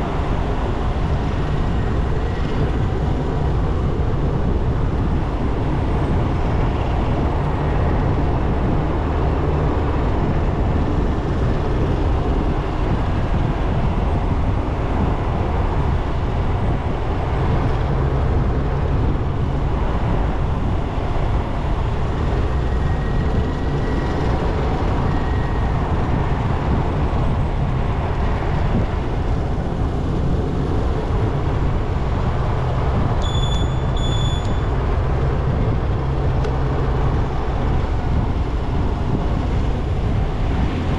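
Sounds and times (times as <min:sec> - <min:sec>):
motorbike engine rumble: 0:00.0 - 0:40.9
wind on microphone: 0:00.0 - 0:40.9
short high-pitched beep: 0:33.2 - 0:34.7.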